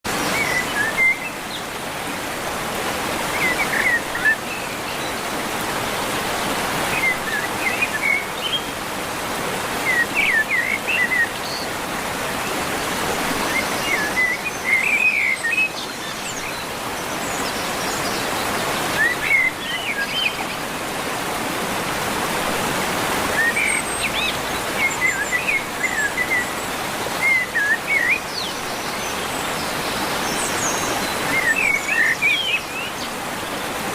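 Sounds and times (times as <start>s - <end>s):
songbird chirping: 23.3s - 33.8s.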